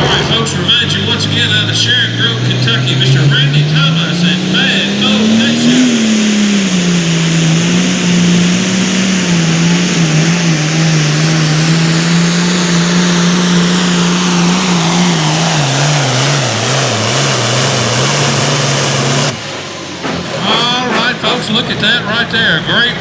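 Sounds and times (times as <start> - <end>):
diesel tractor engine under load: 0.0 - 23.0
high whine: 0.0 - 23.0.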